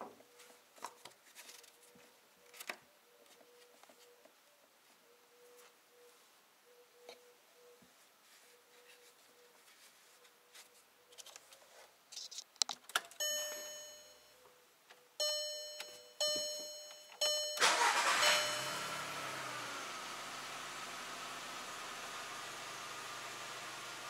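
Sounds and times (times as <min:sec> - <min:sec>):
dashboard warning chime: 0:13.2 - 0:14.4, 0:15.2 - 0:19.8
car engine starting and idling: 0:17.2 - 0:24.0.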